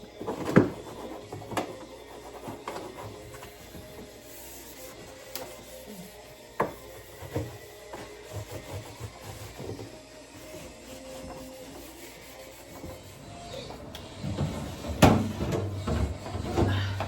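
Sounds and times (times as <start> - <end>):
cloth wiping surfaces: 2.1 - 13.6
shelves knocking and clunking: 14.2 - 17.0.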